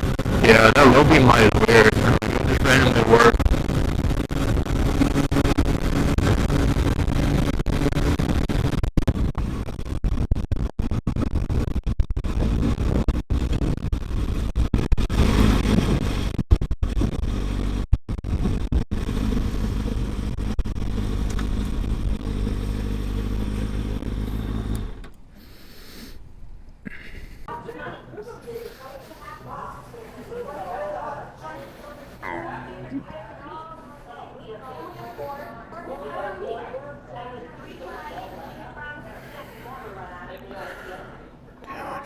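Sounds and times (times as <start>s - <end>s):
motorcycle engine running: 0.0s - 25.1s.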